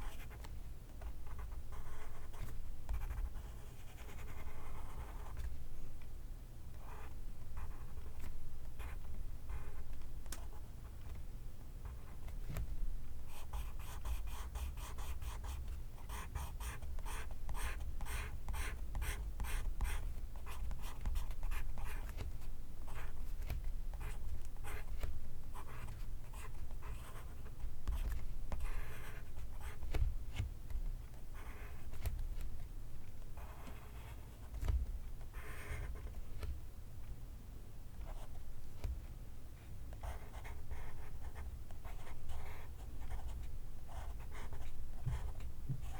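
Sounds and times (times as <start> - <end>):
pencil scratching on paper: 1.3 - 5.4, 13.3 - 22.2, 22.9 - 23.2, 40.0 - 43.3.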